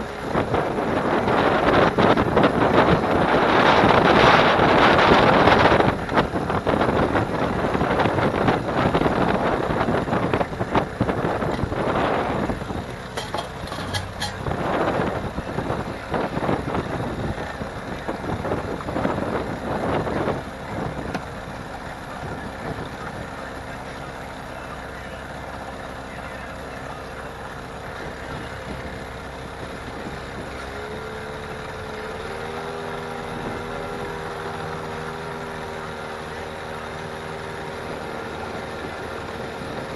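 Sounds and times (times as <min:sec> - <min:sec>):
wind gusting on microphone: 0:00.0 - 0:23.4
boat motor running: 0:00.0 - 0:39.9.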